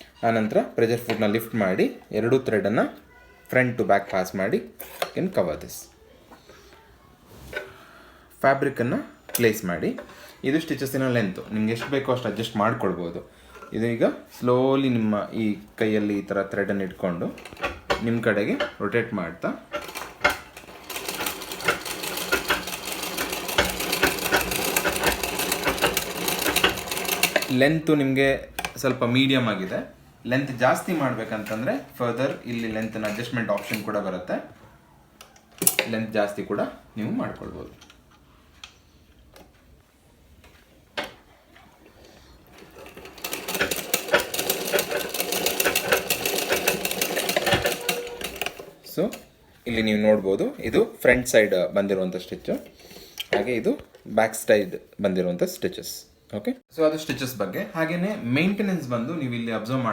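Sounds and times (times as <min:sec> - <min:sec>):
sewing machine stitching fabric: 0:09.3 - 0:27.8, 0:28.6 - 0:34.2, 0:41.0 - 0:50.0
sewing machine click: 0:19.7 - 0:27.6, 0:42.6 - 0:49.3.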